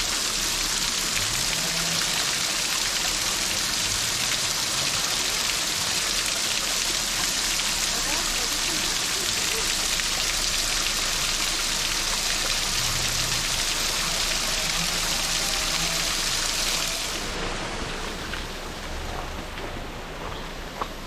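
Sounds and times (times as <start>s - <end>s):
hiss of rushing water: 0.0s - 21.0s.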